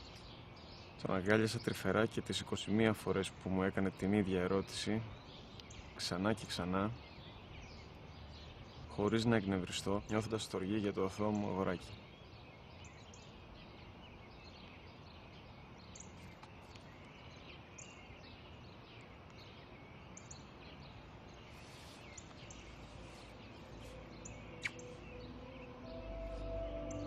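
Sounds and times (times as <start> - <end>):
small birds chirping: 0.0 - 27.0
faint outdoor hush: 19.2 - 27.0
soft music tones: 21.6 - 27.0.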